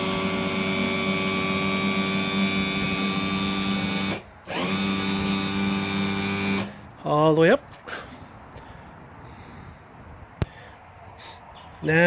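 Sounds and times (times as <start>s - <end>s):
electric motor humming: 0.0s - 6.7s.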